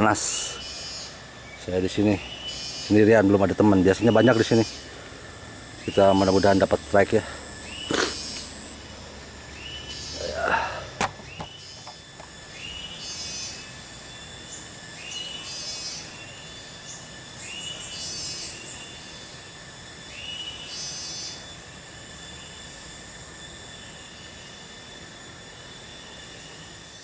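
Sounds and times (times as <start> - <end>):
high insect drone: 0.0 - 27.0
rising call with buzzy burst: 2.7 - 11.0.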